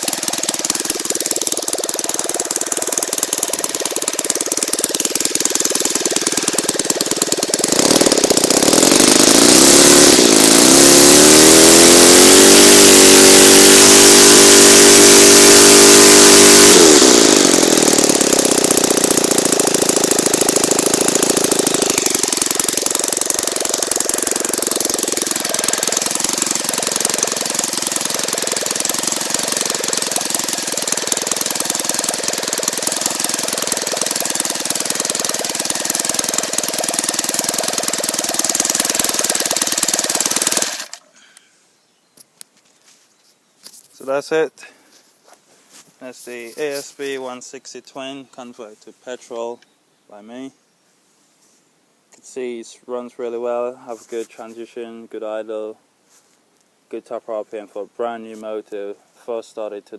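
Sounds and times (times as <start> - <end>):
model aircraft engine revving: 0.0 - 41.1.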